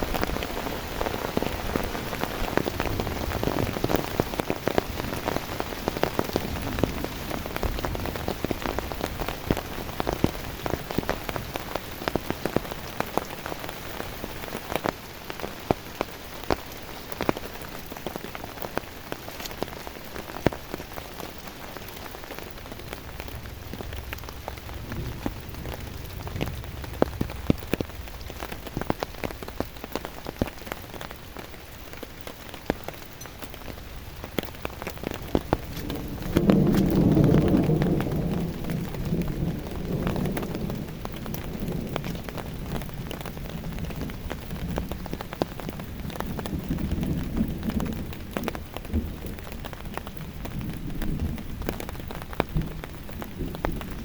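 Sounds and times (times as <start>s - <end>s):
heavy rain falling: 0.0s - 54.0s
raindrop impacts ticking: 0.0s - 54.0s
low rumble: 22.5s - 29.8s, 33.3s - 42.8s.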